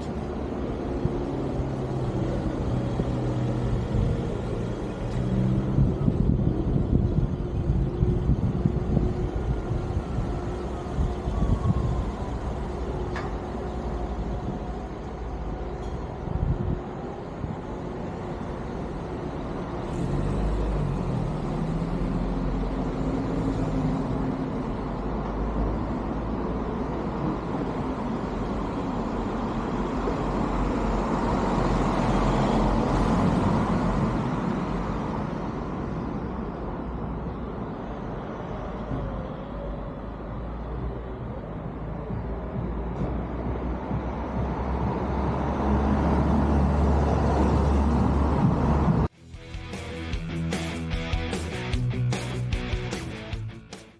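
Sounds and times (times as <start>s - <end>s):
road noise: 0.0s - 53.9s
wind noise: 0.2s - 18.4s.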